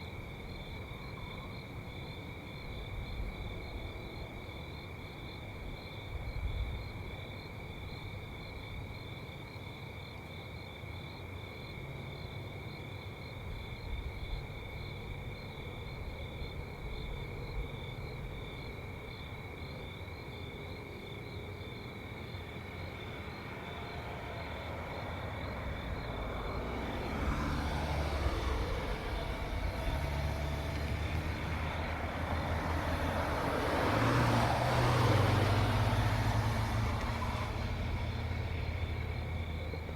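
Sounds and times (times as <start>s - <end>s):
crickets chirring: 0.0s - 39.9s
motor vehicle approaching: 22.1s - 39.9s.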